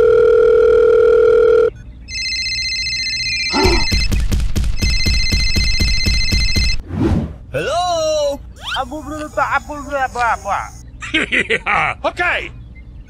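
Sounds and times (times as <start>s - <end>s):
calling tone beep: 0.0s - 4.1s
phone ringing: 0.0s - 4.1s, 4.8s - 6.8s.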